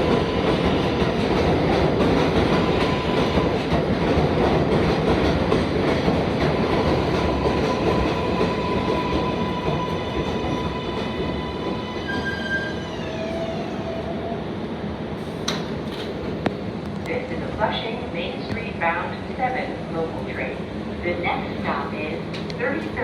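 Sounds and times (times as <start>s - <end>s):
train wheels rumbling and squealing: 0.0s - 14.6s.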